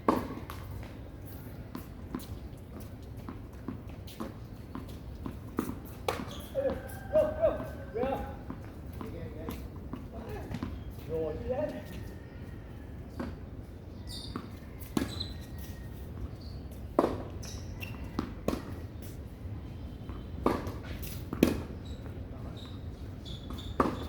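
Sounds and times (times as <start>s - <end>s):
tennis ball struck by rackets: 4.1s - 6.9s, 16.9s - 17.3s, 20.4s - 21.7s, 23.7s - 24.0s.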